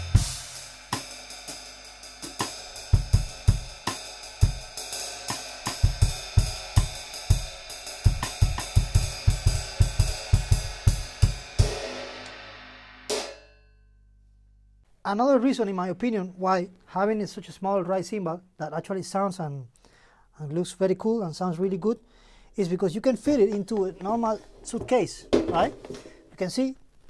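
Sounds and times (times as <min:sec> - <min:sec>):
drum kit groove with kick drum: 0:00.0 - 0:13.4, 0:23.2 - 0:26.3
ride cymbal played with drumsticks: 0:00.0 - 0:13.5.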